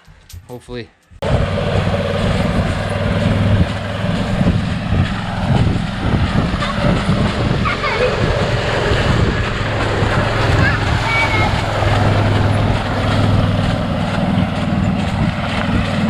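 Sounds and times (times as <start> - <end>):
clatter of chain and beaters: 0.0 - 1.2
tractor engine hum: 1.2 - 16.0.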